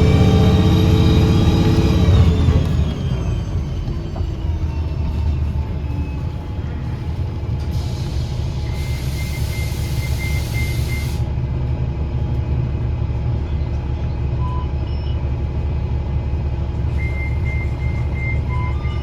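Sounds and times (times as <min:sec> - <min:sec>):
bus engine rumbling: 0:00.0 - 0:19.0
hiss: 0:07.7 - 0:11.3.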